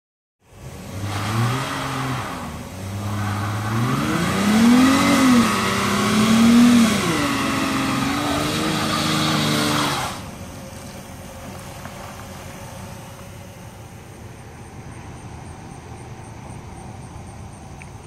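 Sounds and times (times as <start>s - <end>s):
car engine revving hard: 0.6s - 10.3s
tyres spinning and screeching: 0.9s - 13.6s.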